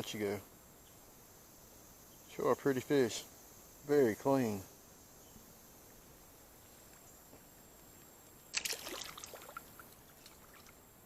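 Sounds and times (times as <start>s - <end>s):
faint creek background: 0.0s - 11.0s
water splashing and trickling: 8.4s - 11.0s.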